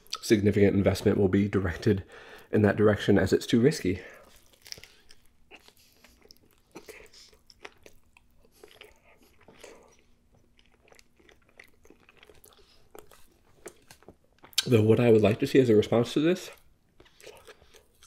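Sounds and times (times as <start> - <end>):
chewing with sharp clicks: 4.4 - 14.7, 16.5 - 18.0.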